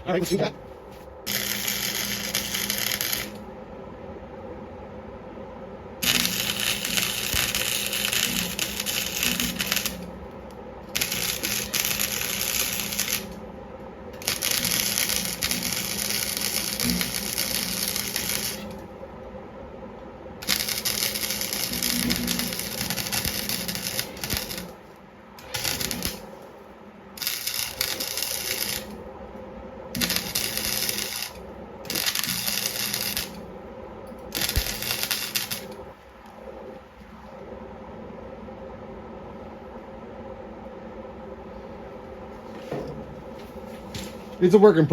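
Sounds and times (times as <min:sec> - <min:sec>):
welder arc crackling: 0:00.0 - 0:03.5, 0:06.0 - 0:19.0, 0:20.4 - 0:29.2, 0:29.9 - 0:36.8
faint steady hum: 0:00.0 - 0:44.9.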